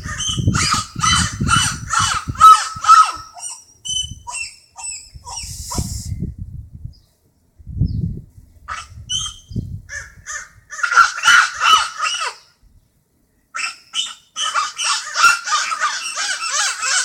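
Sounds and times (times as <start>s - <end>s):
crows cawing: 9.9s - 12.5s, 13.6s - 17.0s.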